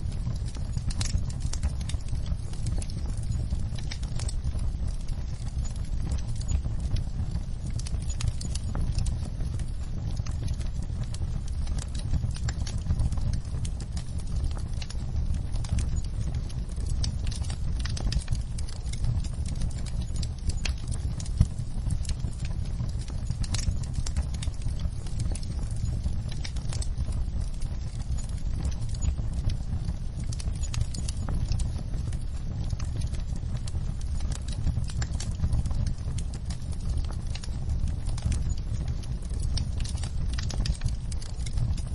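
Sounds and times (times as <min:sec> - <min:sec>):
fire crackling and popping: 0:00.0 - 0:41.9
low rumble of flames: 0:00.0 - 0:41.9.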